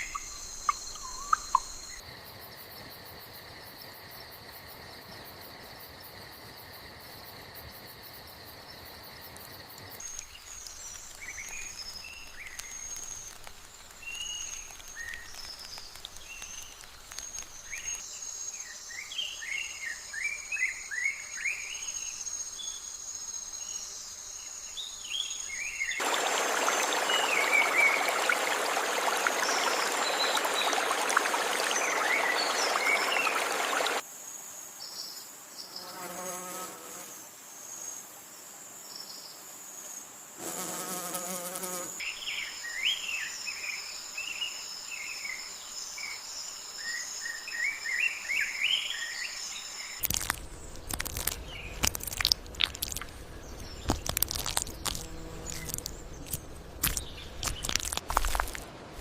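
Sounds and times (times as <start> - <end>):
bird chirps: 0.0 - 2.0
insect trill: 0.0 - 38.0, 38.8 - 58.6
low insect buzz: 5.4 - 30.0, 32.7 - 58.5.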